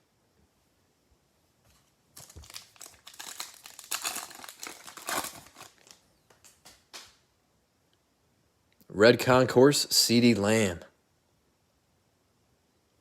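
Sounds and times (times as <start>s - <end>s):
foil wrapper crinkling and tearing: 2.2s - 6.6s.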